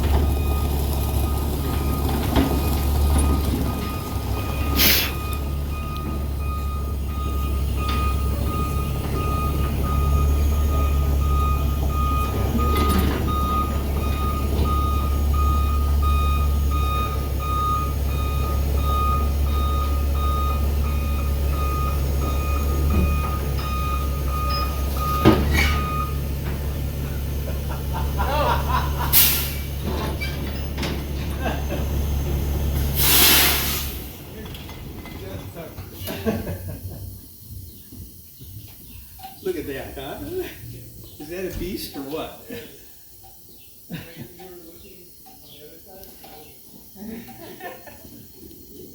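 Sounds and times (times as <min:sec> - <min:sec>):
reversing alarm beeping: 0:00.0 - 0:34.0
diesel engine idling: 0:00.0 - 0:36.3
air hiss bursts: 0:04.7 - 0:05.3, 0:29.1 - 0:29.8, 0:32.8 - 0:34.1.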